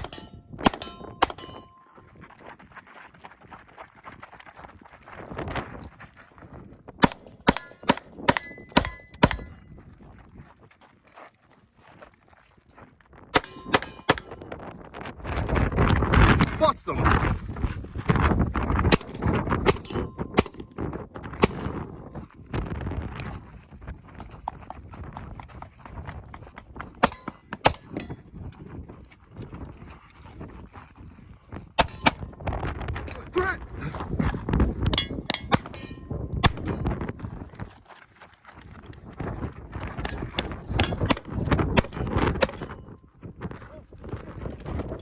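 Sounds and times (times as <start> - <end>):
gunshots: 0.0 - 1.7, 7.0 - 9.5, 13.4 - 14.4, 18.9 - 20.7, 21.4 - 21.8, 27.0 - 28.1, 31.8 - 32.3, 35.0 - 36.9, 40.8 - 42.8
wind buffeting microphone: 4.1 - 10.7, 13.1 - 37.8, 38.6 - 45.0.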